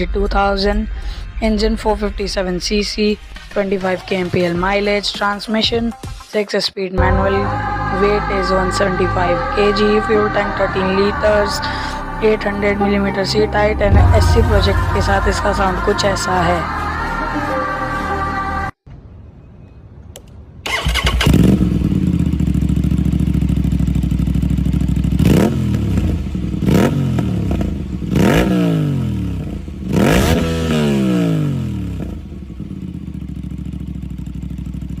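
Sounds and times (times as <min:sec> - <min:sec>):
motorcycle engine revving: 0:20.7 - 0:35.0.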